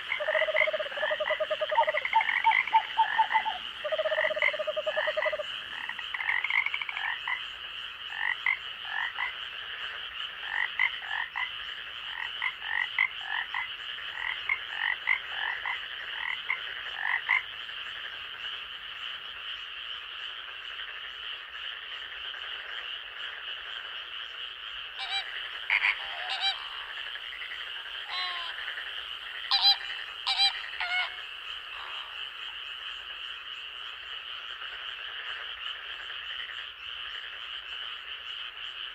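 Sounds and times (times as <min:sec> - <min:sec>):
frogs calling: 0:00.0 - 0:38.9.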